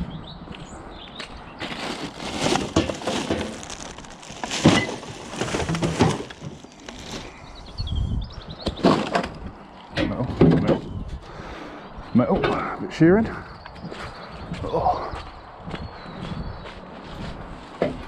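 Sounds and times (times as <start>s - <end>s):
rubbish being rummaged through: 1.6s - 7.6s, 8.8s - 9.4s
bird chirping: 6.3s - 9.9s.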